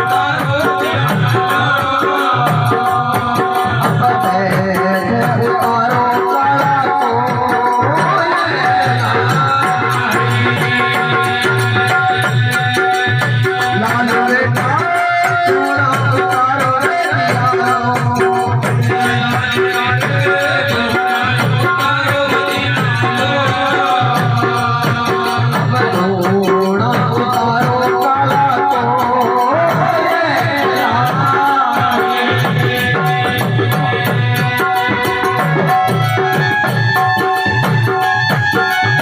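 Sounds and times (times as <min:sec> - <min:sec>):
hand drum beat: 0:00.0 - 0:39.0.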